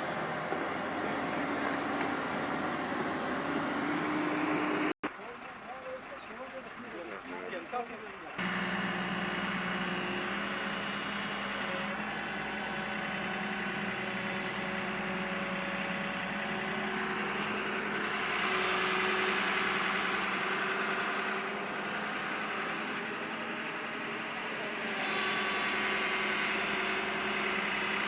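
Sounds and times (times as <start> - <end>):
heavy vehicle engine idling: 0.0 - 4.4, 5.1 - 28.0.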